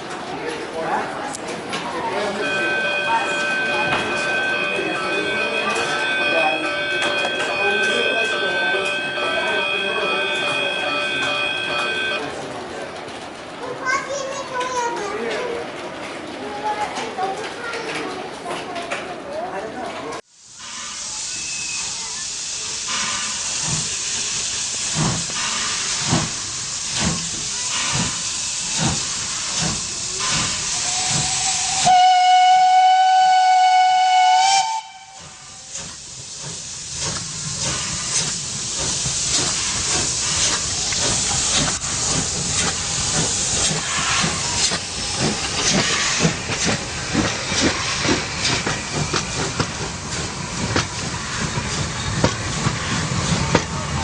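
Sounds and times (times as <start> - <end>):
train rhythmic clatter: 0.0 - 19.2, 20.0 - 54.0
steam locomotive hissing and chuffing: 1.2 - 12.2, 20.2 - 54.0
steam whistle: 30.8 - 35.6.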